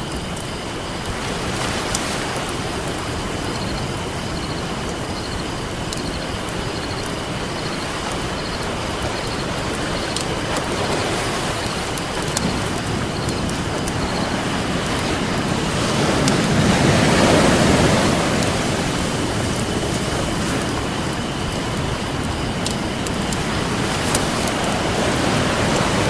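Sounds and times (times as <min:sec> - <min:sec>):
ocean surf: 0:00.0 - 0:26.0
campfire crackling and popping: 0:11.9 - 0:26.0.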